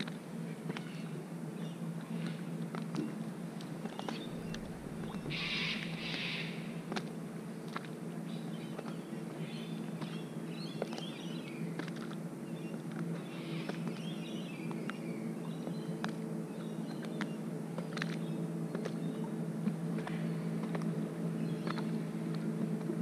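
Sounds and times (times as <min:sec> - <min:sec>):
steady low hum: 0:00.0 - 0:23.0
birds chirping: 0:03.1 - 0:06.9, 0:08.3 - 0:11.8, 0:12.4 - 0:19.4, 0:21.3 - 0:22.0.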